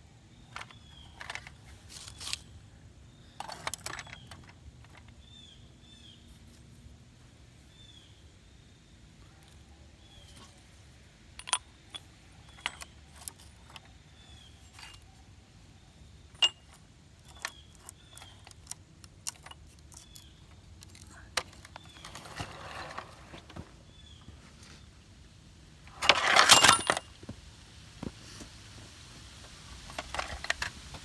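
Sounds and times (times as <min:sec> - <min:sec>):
clicks and clinks of small objects: 0:03.4 - 0:05.1, 0:11.4 - 0:13.9, 0:16.3 - 0:22.2, 0:25.9 - 0:27.1.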